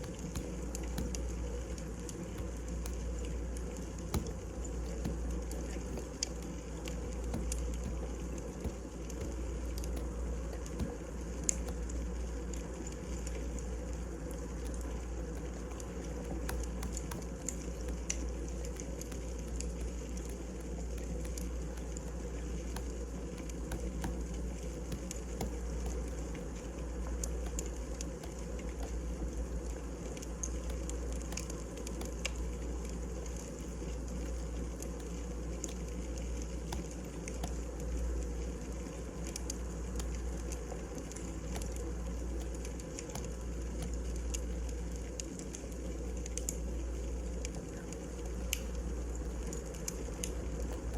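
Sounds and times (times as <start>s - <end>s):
firewood crackling and popping: 0.0s - 50.9s.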